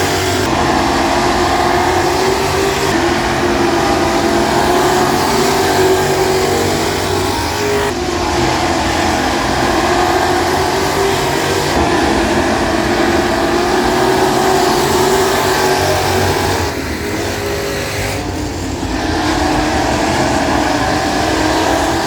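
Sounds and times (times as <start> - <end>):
race car engines droning: 0.0 - 22.0.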